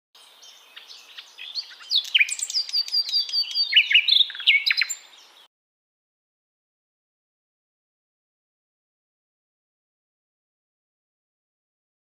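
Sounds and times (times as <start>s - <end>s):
songbird singing: 0.2s - 5.5s.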